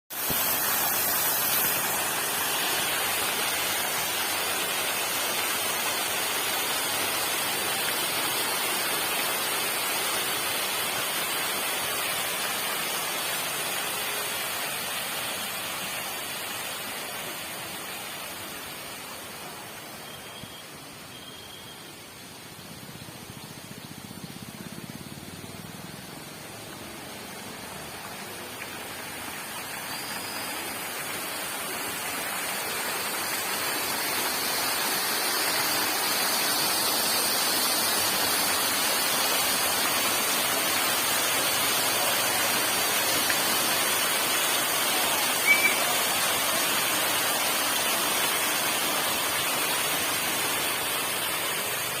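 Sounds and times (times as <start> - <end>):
water fountain splashing: 0.1 - 20.6, 22.7 - 52.0
high chirp: 45.4 - 45.9.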